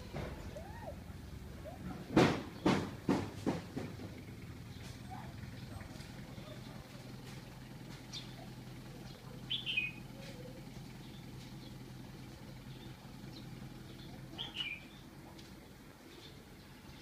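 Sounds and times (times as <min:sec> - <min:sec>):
bird chirping: 0:08.1 - 0:11.8, 0:12.5 - 0:17.0.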